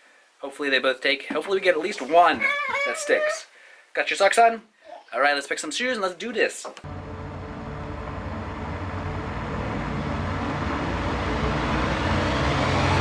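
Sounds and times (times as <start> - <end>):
car driving: 6.8 - 13.0
faint whine rising in pitch: 6.9 - 13.0.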